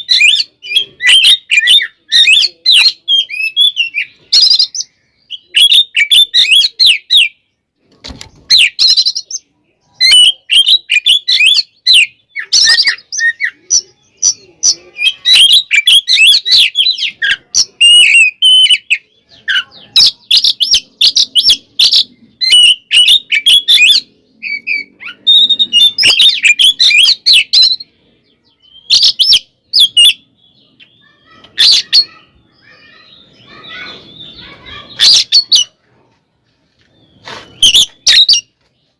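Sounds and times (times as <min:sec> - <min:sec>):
bird chirps and whistles: 0:20.0 - 0:27.8, 0:37.2 - 0:38.5.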